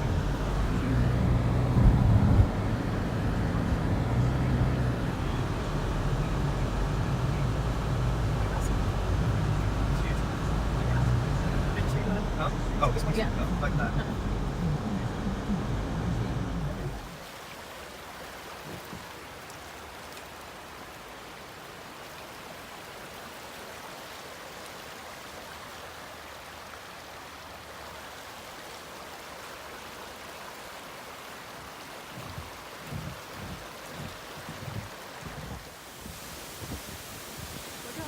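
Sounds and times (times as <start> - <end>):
low muffled bumps: 0.0 - 17.1
waterfall rushing: 0.0 - 38.0.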